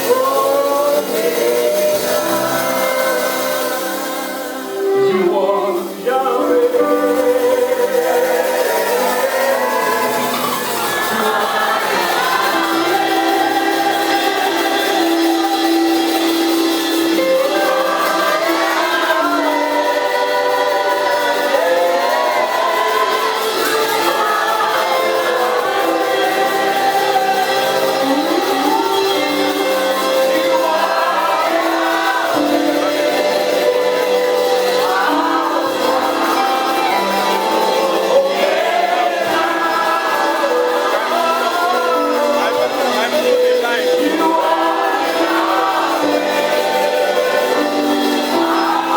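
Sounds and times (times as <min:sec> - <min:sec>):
gospel choir singing: 0:00.0 - 0:48.9.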